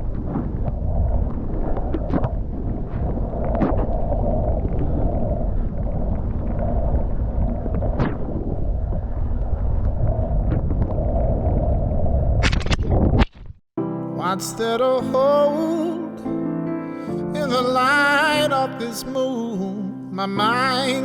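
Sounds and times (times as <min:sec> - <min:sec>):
wind on microphone: 0:00.0 - 0:13.6.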